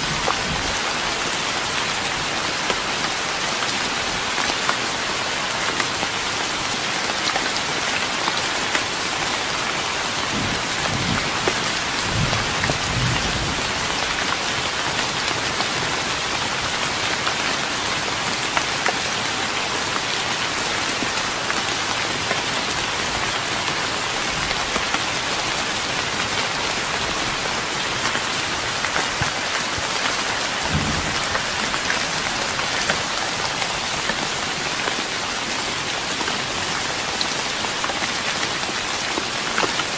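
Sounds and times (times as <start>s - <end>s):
rain hissing on wooden deck: 0.0s - 39.9s.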